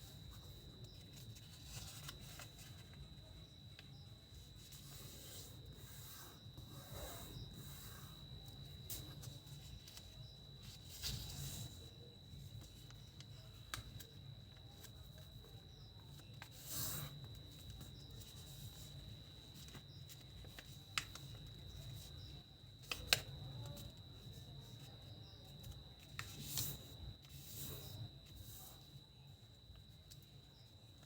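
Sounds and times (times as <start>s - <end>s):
paper rustling: 0.4s - 3.1s, 8.8s - 11.9s, 16.2s - 22.2s.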